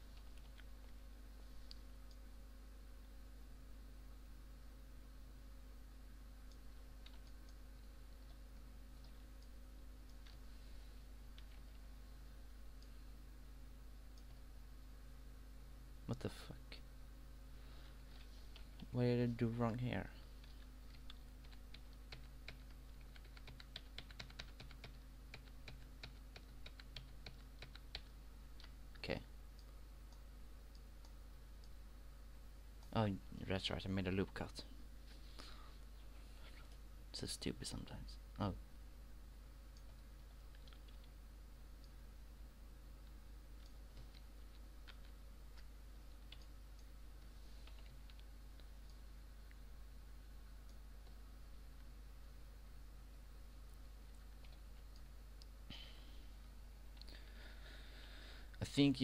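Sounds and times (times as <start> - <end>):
low electrical hum: 0.0 - 59.0
keyboard and mouse clicking: 6.4 - 7.6, 20.4 - 29.0, 39.7 - 41.1, 43.0 - 46.9.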